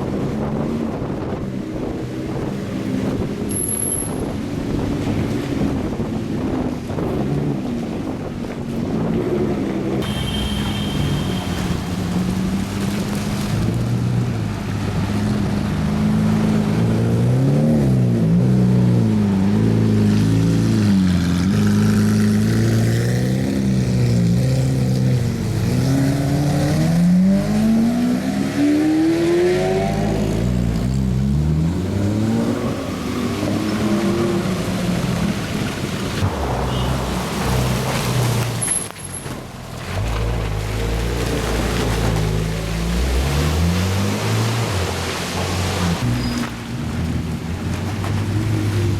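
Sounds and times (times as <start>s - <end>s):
sports car engines revving: 11.6s - 48.9s.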